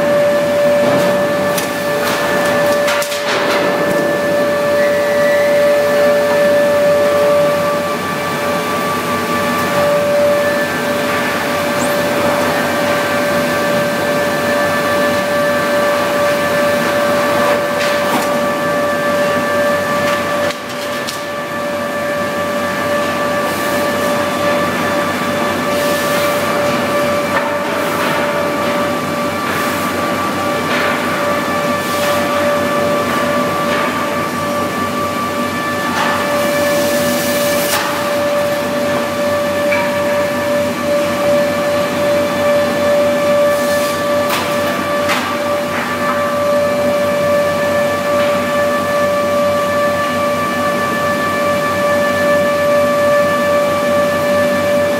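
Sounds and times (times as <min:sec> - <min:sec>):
planing machine whining: 0:00.0 - 0:20.5.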